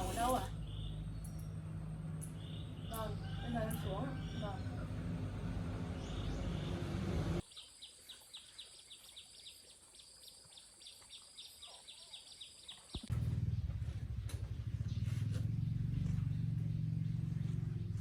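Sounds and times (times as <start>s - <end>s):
loud motor vehicle engine: 0.0s - 7.4s, 13.1s - 18.0s.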